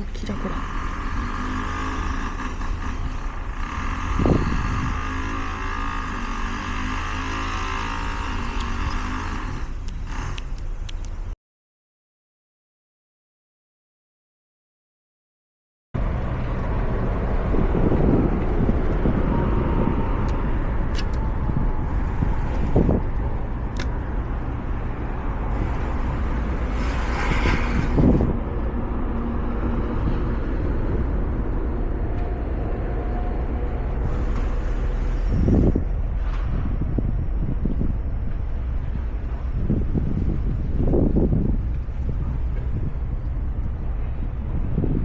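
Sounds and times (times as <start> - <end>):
engine low rumble: 0.0 - 11.4, 16.0 - 45.0
wind buffeting microphone: 0.0 - 11.4, 16.0 - 45.0
rush of noise: 16.0 - 45.0.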